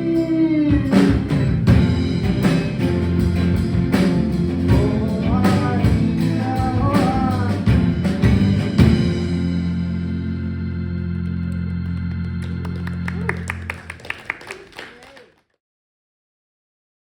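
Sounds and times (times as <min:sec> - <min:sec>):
person singing: 0:00.0 - 0:01.2, 0:04.6 - 0:07.8
live rock band: 0:00.0 - 0:14.5.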